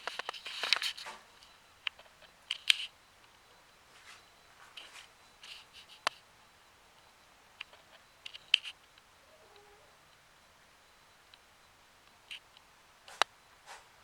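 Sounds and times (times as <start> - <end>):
scratchy rustles: 0.0 - 1.6, 3.9 - 6.2.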